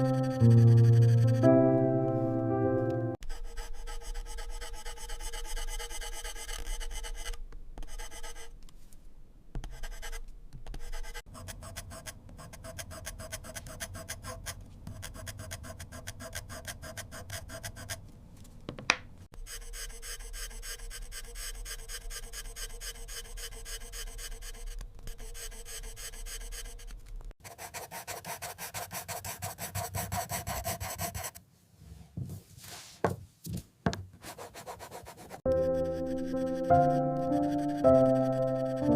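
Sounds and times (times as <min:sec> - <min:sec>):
pencil scratching on paper: 0:00.0 - 0:01.4, 0:03.2 - 0:08.5, 0:09.6 - 0:18.0, 0:19.4 - 0:31.4, 0:34.2 - 0:38.9.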